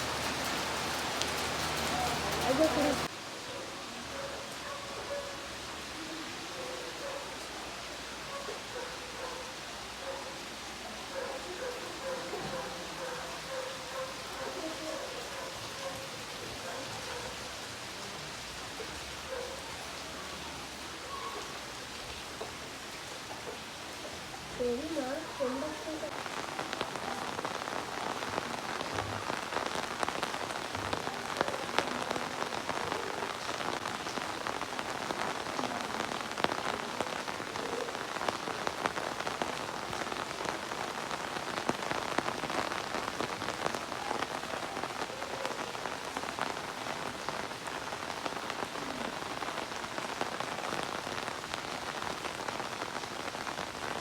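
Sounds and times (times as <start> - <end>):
rain on hard surfaces: 0.0 - 54.0.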